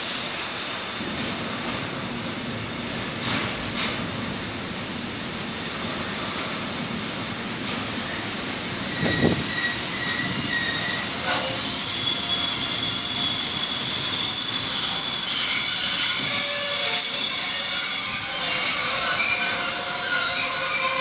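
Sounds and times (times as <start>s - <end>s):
high-pitched metallic squeal: 8.1s - 21.0s.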